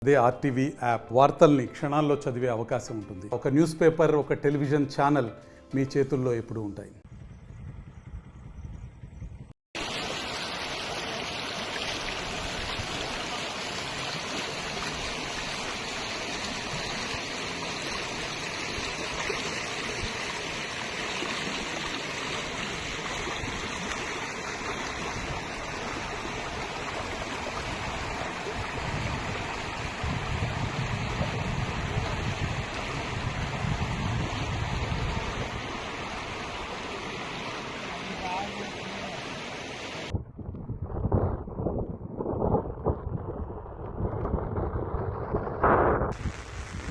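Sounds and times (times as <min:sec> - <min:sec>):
deep low rumble: 0:07.0 - 0:09.5, 0:40.1 - 0:46.9
floodwater rushing: 0:09.8 - 0:40.1.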